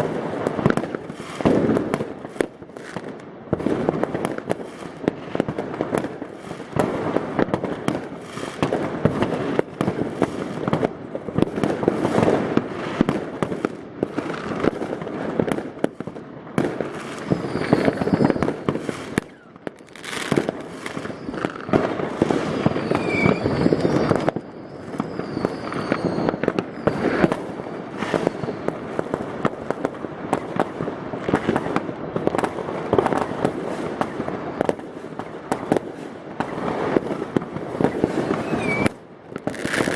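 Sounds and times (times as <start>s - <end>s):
firework whistles: 0.0s - 5.6s, 6.2s - 14.8s, 16.8s - 29.2s, 30.2s - 39.9s
fireworks bangs and crackling: 0.0s - 39.9s.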